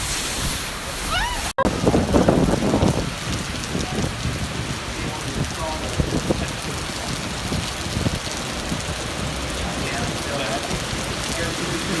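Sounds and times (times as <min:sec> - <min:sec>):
heavy downpour drumming: 0:00.8 - 0:12.0.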